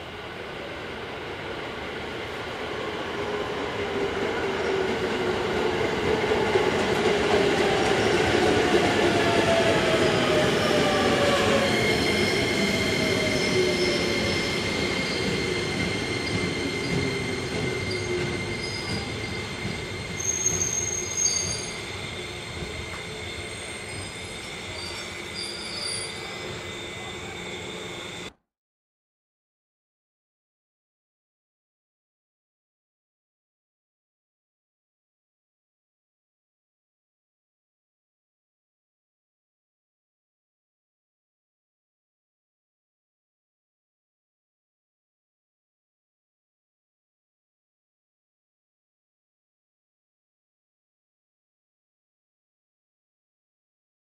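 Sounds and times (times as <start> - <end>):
electric train whine: 0.1 - 28.4
wheel and brake squeal: 10.0 - 28.3.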